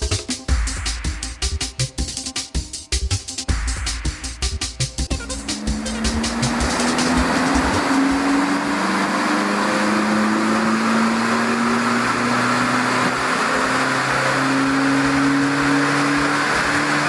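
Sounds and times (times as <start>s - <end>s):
diesel engine droning under load: 5.2s - 17.0s.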